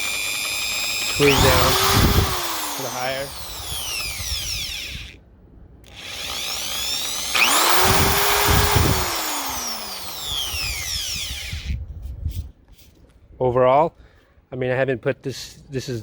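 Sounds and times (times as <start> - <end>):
hammer drill motor winding up: 0.0 - 5.2, 5.9 - 11.8.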